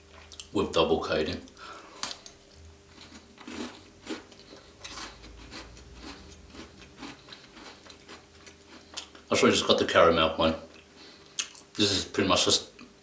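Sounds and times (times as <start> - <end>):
chewing chocolate biscuit: 2.0 - 9.3.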